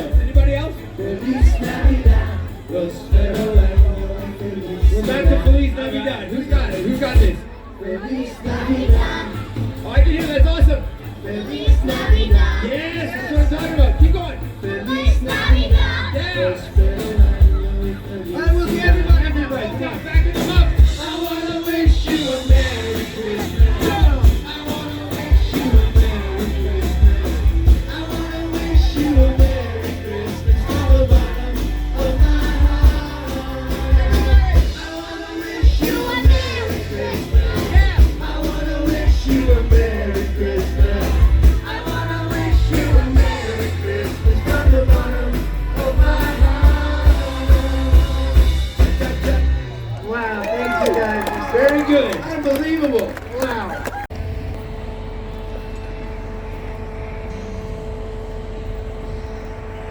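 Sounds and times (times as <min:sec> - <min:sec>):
band playing upbeat song: 0:00.0 - 0:54.6
person singing: 0:20.4 - 0:49.8.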